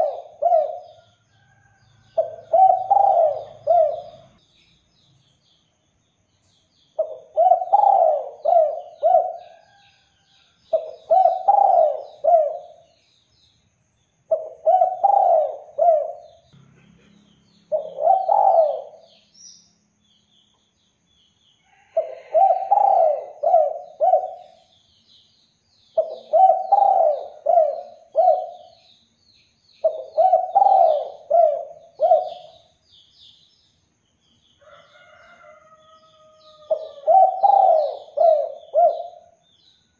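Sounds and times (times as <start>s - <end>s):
dove cooing: 0.0s - 1.0s, 2.2s - 4.4s, 7.0s - 9.8s, 10.7s - 12.8s, 14.3s - 16.4s, 17.7s - 19.1s, 22.0s - 24.6s, 26.0s - 28.8s, 29.8s - 32.6s, 36.5s - 39.4s
small birds chirping: 0.0s - 39.9s.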